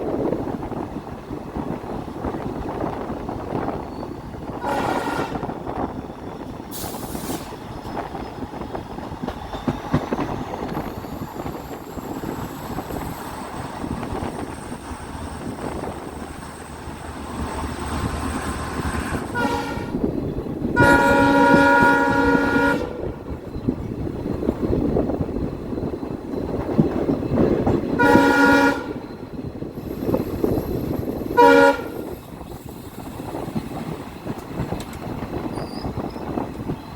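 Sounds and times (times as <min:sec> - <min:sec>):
train wheels rumbling on rails: 0:00.0 - 0:36.9
locomotive horn: 0:04.5 - 0:05.5, 0:19.2 - 0:20.1, 0:20.8 - 0:23.2, 0:28.0 - 0:29.1, 0:31.4 - 0:32.1.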